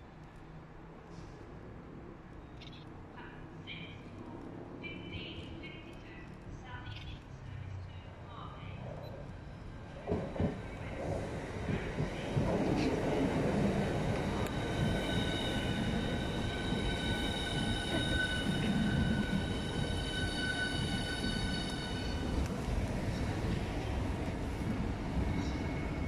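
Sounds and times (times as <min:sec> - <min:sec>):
train wheels rumbling: 0:09.3 - 0:26.0.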